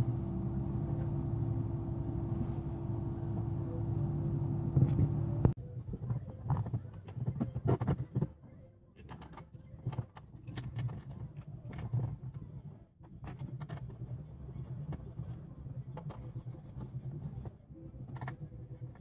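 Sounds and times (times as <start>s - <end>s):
low steady rumble: 0.0s - 5.6s.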